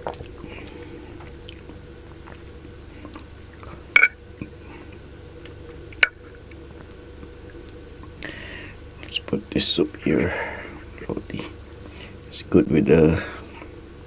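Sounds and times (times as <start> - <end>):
chewing and eating: 0.0 - 8.3.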